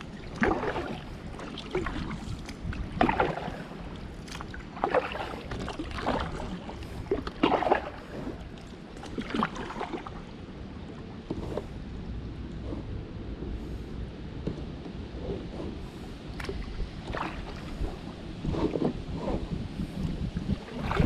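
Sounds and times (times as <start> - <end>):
kayak paddle splashing water: 0.0 - 10.4, 15.2 - 21.0.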